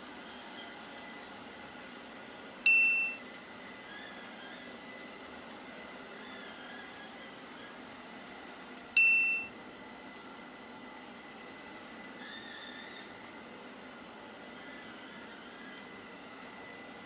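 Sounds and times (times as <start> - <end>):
faint hiss with high tone: 2.7 - 3.2, 9.0 - 9.5
sharp electronic beep: 2.7 - 3.2, 9.0 - 9.5.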